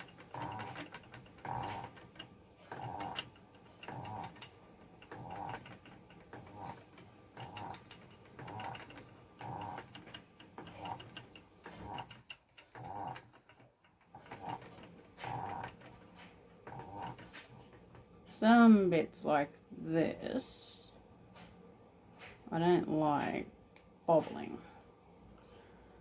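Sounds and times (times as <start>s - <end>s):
spinning wheel whirring: 0.0s - 18.0s.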